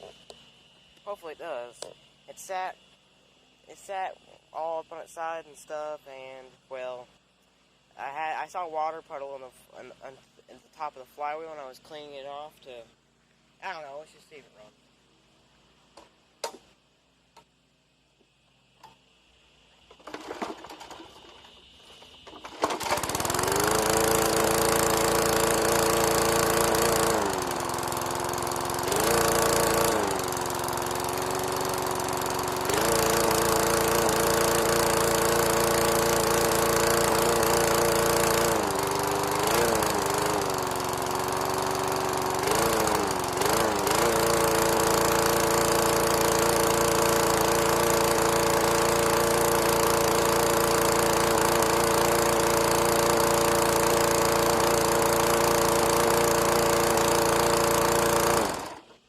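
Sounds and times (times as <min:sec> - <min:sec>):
lawn mower engine running: 0:19.8 - 0:59.0.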